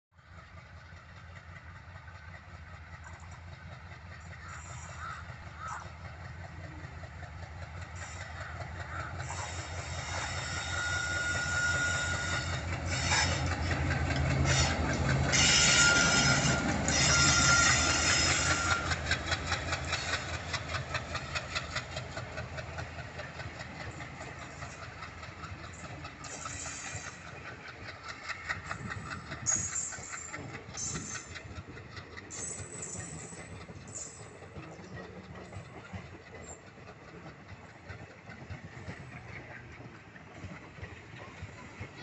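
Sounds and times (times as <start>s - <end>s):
diesel locomotive engine drone: 0.1s - 42.0s
wheels clattering over rail joints: 0.3s - 42.0s
high squeal: 9.3s - 13.5s, 14.4s - 19.0s.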